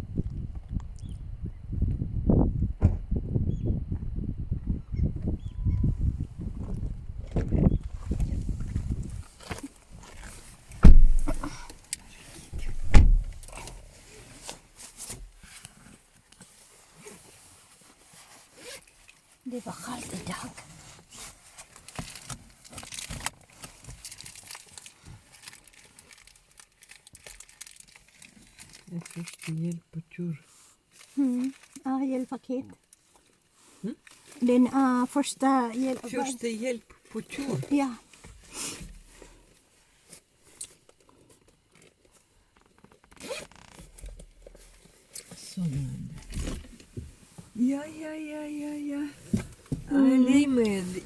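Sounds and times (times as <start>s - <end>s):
handling clicks and rustles: 7.3s - 17.4s
zipper being pulled: 18.6s - 18.8s, 43.2s - 43.8s
plastic packaging crinkling: 21.1s - 29.8s, 30.9s - 31.9s.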